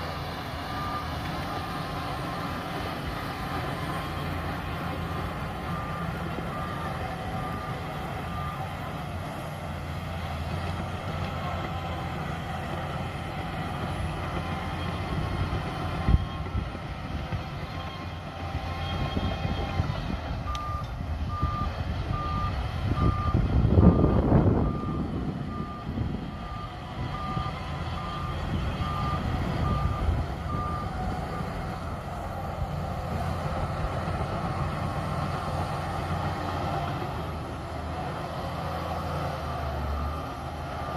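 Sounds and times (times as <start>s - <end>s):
bulldozer diesel engine running: 0.0s - 40.9s
reversing alarm beeping: 0.5s - 8.9s, 14.1s - 16.9s, 17.5s - 31.8s, 39.5s - 40.9s.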